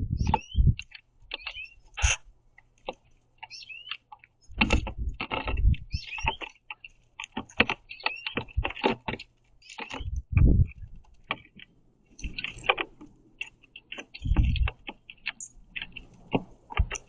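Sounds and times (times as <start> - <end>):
short bird chirps: 0.1 - 2.2, 5.9 - 6.5
beaks pecking at seeds: 0.1 - 17.0.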